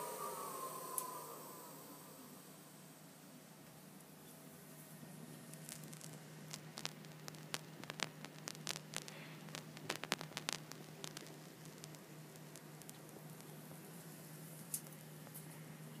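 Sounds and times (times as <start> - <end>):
steady low hum: 0.0 - 16.0
high-voltage arc crackling: 5.4 - 15.0.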